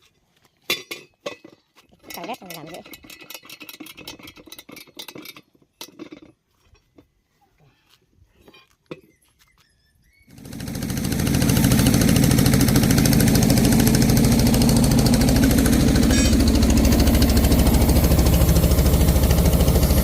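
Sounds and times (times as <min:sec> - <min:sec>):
engine starting and running: 0:10.3 - 0:20.0.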